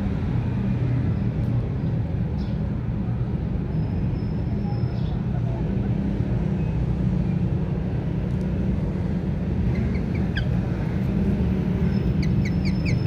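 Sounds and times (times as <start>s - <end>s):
sharp repeated chirps: 11.9s - 13.0s.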